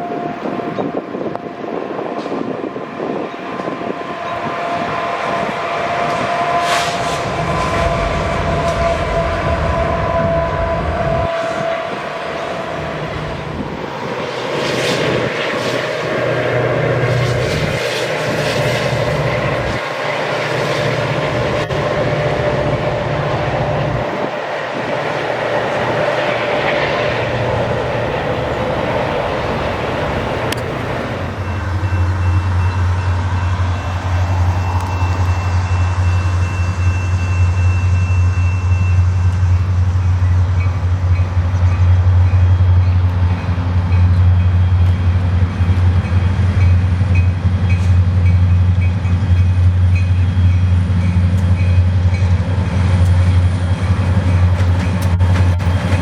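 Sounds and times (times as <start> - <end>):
steady low drone: 0.0 - 37.8
train passing on rails: 0.0 - 56.0.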